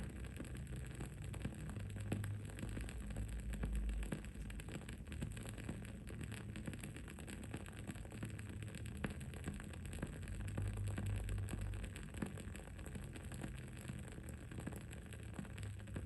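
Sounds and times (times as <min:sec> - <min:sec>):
candle flame crackling: 0:00.0 - 0:16.0.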